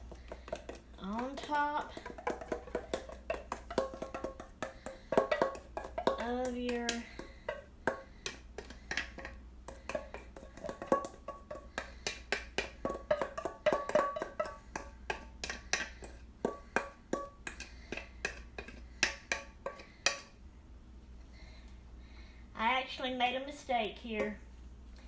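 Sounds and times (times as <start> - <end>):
spoon clinking and scraping bowl: 7.2 - 20.3.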